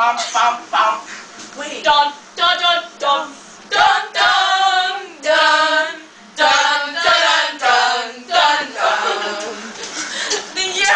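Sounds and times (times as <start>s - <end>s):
women singing together: 2.0s - 10.9s.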